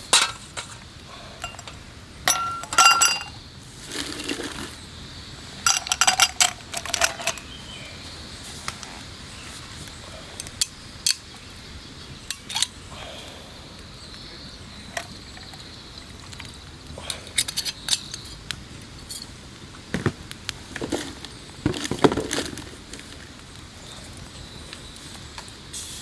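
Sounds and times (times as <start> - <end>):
small objects clinking and knocking: 1.4 - 4.8, 5.6 - 7.5, 20.8 - 23.2.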